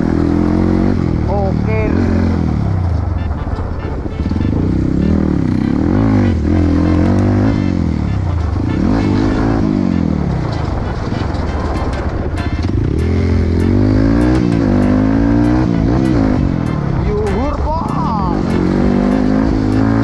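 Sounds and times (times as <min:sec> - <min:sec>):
motorcycle engine revving: 0:00.0 - 0:20.0
sharp ticks: 0:11.4 - 0:20.0.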